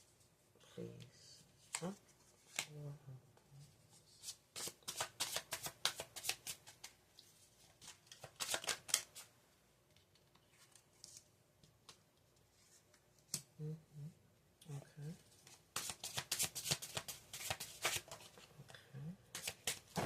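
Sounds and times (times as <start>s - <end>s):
cards being shuffled: 4.2s - 7.0s, 7.6s - 9.3s, 15.4s - 18.5s, 19.3s - 20.0s.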